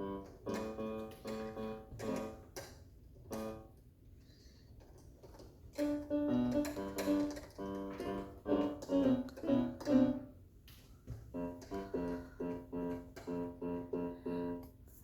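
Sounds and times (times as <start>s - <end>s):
electronic keyboard notes: 0.0s - 2.5s, 3.3s - 3.7s, 5.8s - 10.4s, 11.3s - 14.7s.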